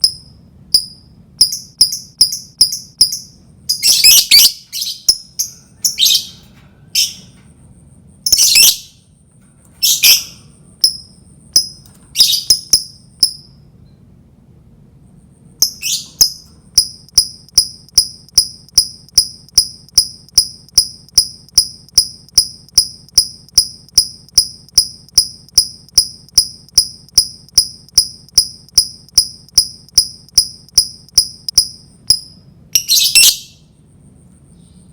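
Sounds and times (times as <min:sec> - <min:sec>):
bird chirping: 0:00.0 - 0:07.4, 0:08.3 - 0:09.0, 0:09.8 - 0:14.0, 0:15.6 - 0:21.7, 0:28.8 - 0:33.8, 0:34.5 - 0:34.9
bird chattering: 0:01.4 - 0:06.4, 0:09.8 - 0:10.5, 0:12.2 - 0:12.9, 0:15.6 - 0:16.4, 0:32.8 - 0:33.6.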